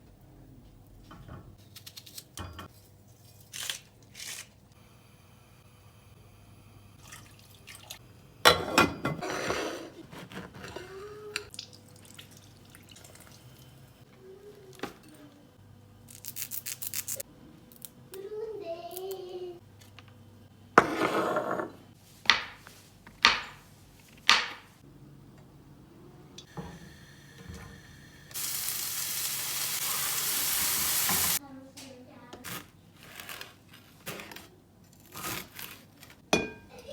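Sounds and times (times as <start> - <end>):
water running at a sink: 7.0 - 8.0, 26.6 - 31.4
utensils and dishes clattering: 8.5 - 11.5
food sizzling in a pan: 26.5 - 31.4.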